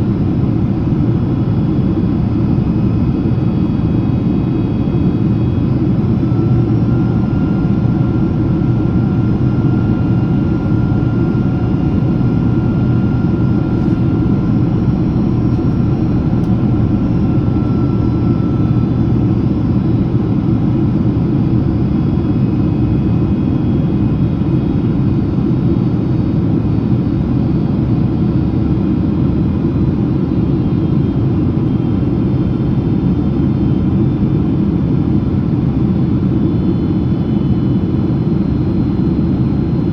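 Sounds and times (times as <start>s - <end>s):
airliner cabin rumble: 0.0s - 25.6s
faint steady whines: 0.0s - 39.9s.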